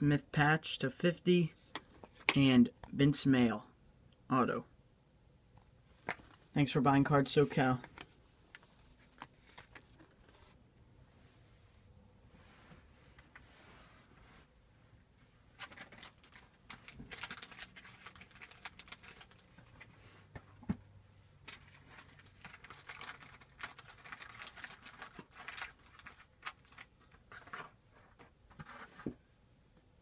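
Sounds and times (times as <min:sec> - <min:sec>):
cards and wrappers rustling: 0:05.9 - 0:06.5, 0:07.4 - 0:10.6, 0:15.5 - 0:20.0, 0:21.4 - 0:29.1.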